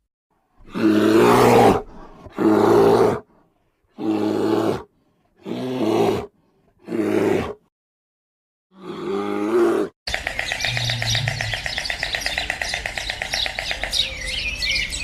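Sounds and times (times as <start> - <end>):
bear roaring: 0.6 - 3.3, 3.9 - 7.6, 8.7 - 9.9.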